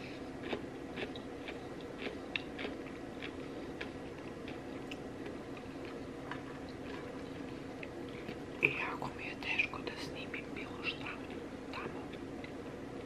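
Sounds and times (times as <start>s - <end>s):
steady background hum: 0.0s - 13.0s
close chewing with mouth clicks: 0.1s - 8.5s.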